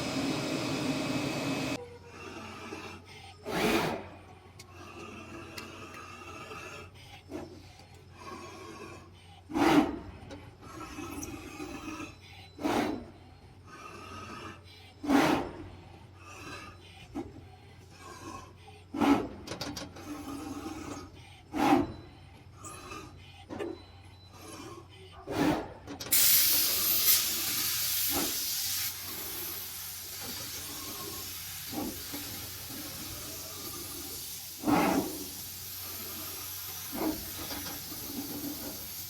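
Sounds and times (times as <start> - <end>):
cutting machine hum: 0.0 - 1.8.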